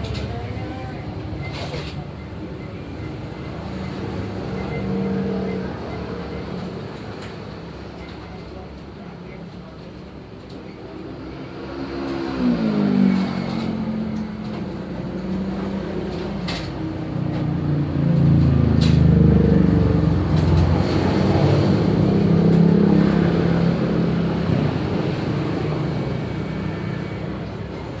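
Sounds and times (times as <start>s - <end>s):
engine running: 12.0s - 28.0s.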